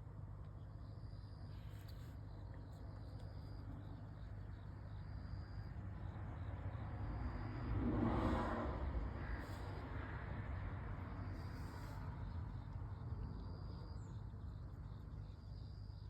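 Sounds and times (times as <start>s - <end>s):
background traffic rumble: 0.0s - 16.0s
vehicle passing: 6.6s - 12.2s.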